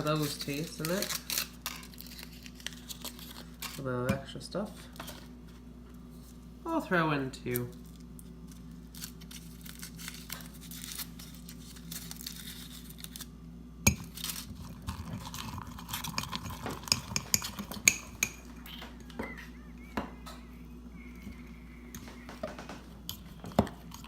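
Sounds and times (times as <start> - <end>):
fork clinking against a mug: 16.1 - 18.5.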